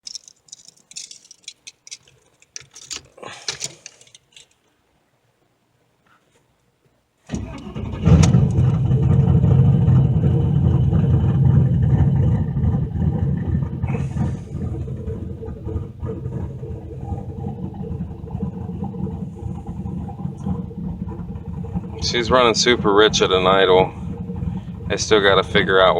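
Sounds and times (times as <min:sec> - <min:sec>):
light clicks and rattles: 0:00.0 - 0:04.8
car engine cranking and idling: 0:07.3 - 0:25.9.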